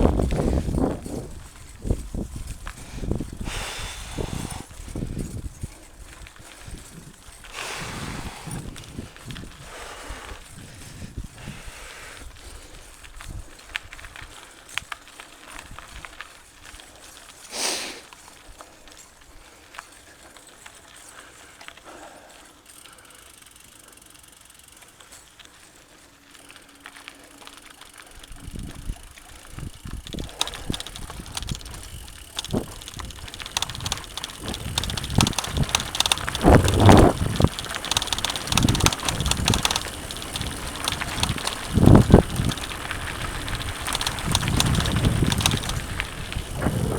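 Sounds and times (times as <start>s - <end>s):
bike tyres rumbling on dirt: 0.0s - 17.0s, 26.3s - 46.9s
bike rattles and knocks: 28.4s - 46.9s.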